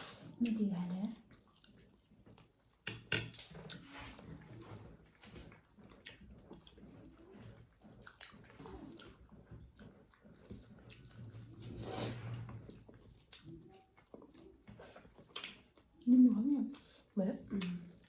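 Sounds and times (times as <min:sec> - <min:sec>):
wet chewing: 0:00.0 - 0:18.0
dishes and cutlery clicking: 0:02.9 - 0:03.4.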